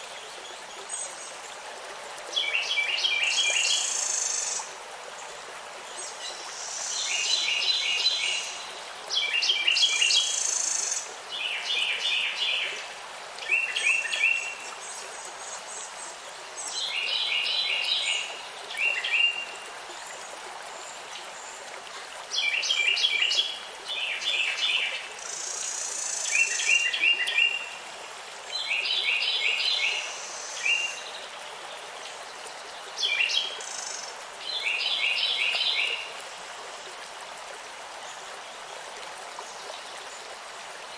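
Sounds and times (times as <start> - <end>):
steady background hiss: 0.0 - 40.9.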